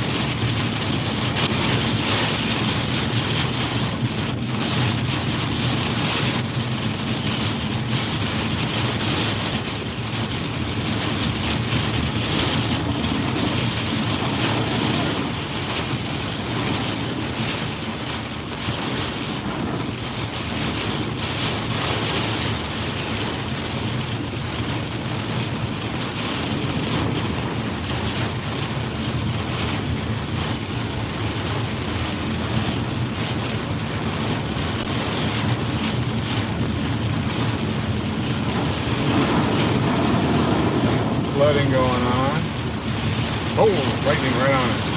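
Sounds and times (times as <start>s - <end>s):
heavy rain on a car: 0.0s - 44.9s
tyre and road noise: 0.0s - 44.9s.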